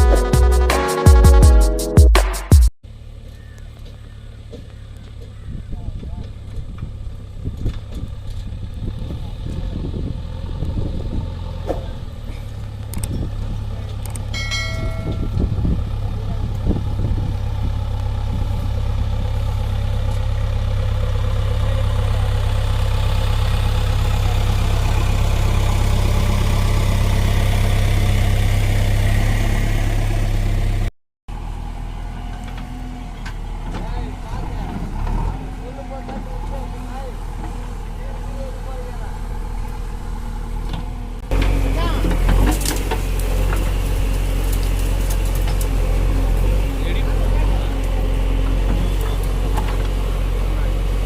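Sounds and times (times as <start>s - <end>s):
quieter engine: 2.8s - 51.0s
tractor engine running: 2.8s - 51.0s
short pitched tone: 14.3s - 15.4s.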